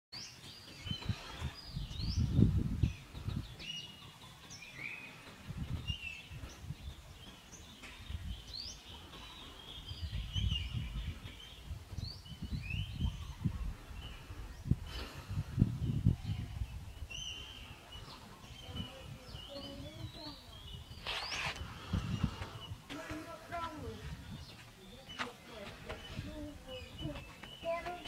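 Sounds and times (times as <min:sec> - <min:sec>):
small birds chirping: 0:00.2 - 0:28.0
low rumbling gusts: 0:01.1 - 0:03.6, 0:09.8 - 0:24.6.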